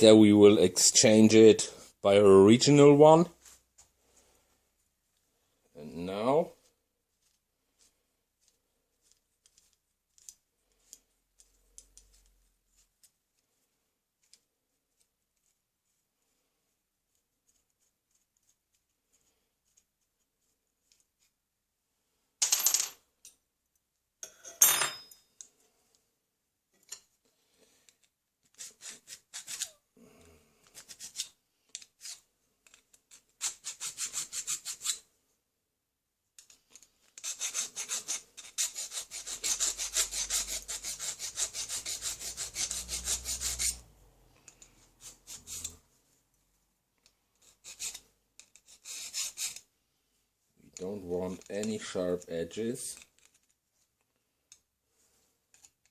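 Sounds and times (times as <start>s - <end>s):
hand file rasping on steel: 33.2s - 35.0s, 37.2s - 43.9s, 44.6s - 45.8s, 47.4s - 49.6s.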